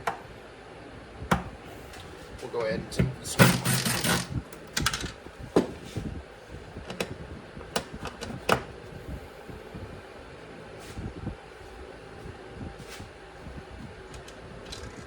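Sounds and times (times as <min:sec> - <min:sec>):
faint steady hum: 0:00.0 - 0:15.0
hand tools clicking and knocking: 0:03.3 - 0:04.3.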